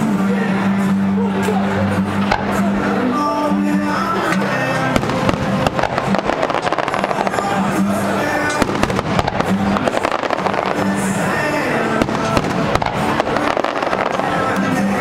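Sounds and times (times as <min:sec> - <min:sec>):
loud music playing: 0:00.0 - 0:15.0
fireworks crackling and popping: 0:02.2 - 0:02.8, 0:04.4 - 0:15.0.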